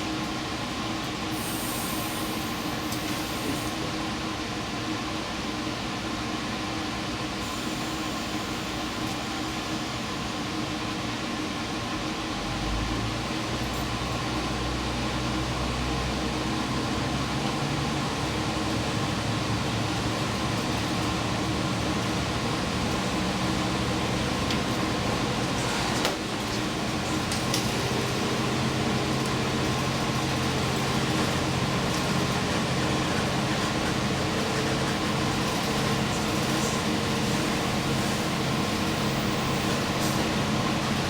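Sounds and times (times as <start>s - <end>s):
train mechanical hum: 0.0s - 41.0s
rail noise: 12.5s - 41.0s.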